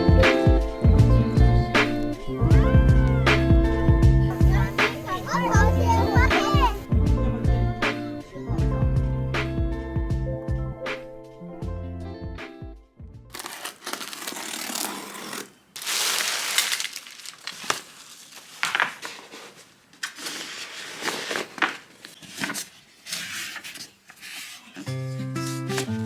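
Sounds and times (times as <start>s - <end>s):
rustling and crinkling handling noise: 13.3s - 26.0s.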